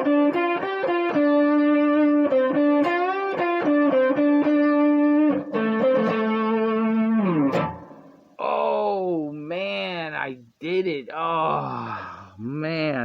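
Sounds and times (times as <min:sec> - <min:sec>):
electric guitar blues solo: 0:00.0 - 0:08.4.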